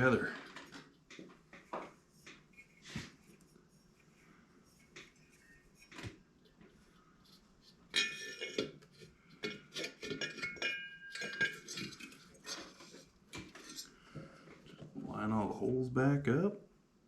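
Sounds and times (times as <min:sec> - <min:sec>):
metal parts clinking and rattling: 0:07.9 - 0:08.7.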